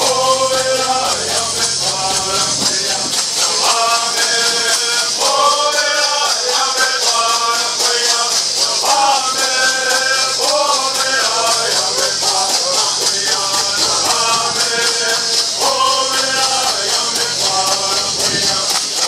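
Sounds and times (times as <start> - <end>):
gourd rattles shaking: 0.0 - 19.0
group singing in unison: 0.0 - 19.0.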